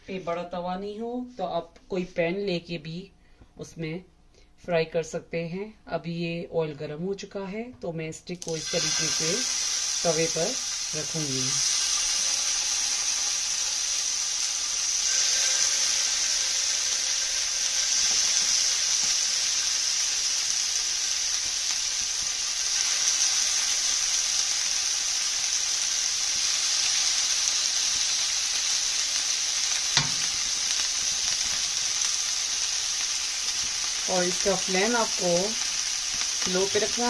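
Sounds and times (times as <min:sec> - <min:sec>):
chicken sizzling in hot oil: 0:08.4 - 0:37.0.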